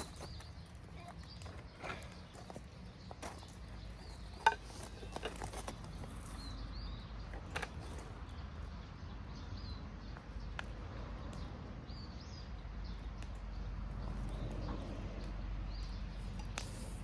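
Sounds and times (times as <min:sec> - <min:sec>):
small bird chirping: 0:00.0 - 0:10.6.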